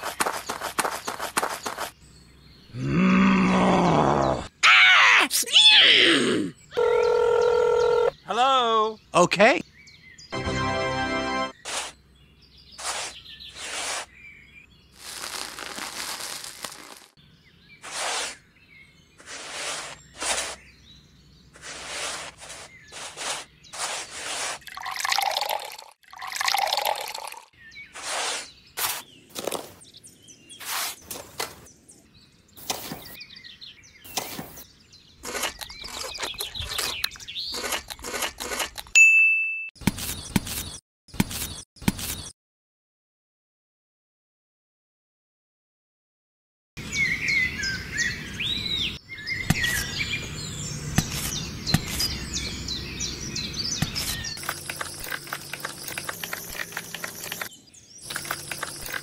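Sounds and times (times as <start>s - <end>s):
toy shovel scraping sand: 0.0s - 2.0s, 11.6s - 12.0s, 12.8s - 14.2s, 15.0s - 17.2s, 17.8s - 18.5s, 19.2s - 20.7s, 21.5s - 25.0s, 27.8s - 29.1s, 30.6s - 31.2s, 35.2s - 38.9s, 51.0s - 52.2s, 53.7s - 59.0s
shovel stirring wet mortar: 21.6s - 25.0s
water pouring: 24.6s - 27.5s.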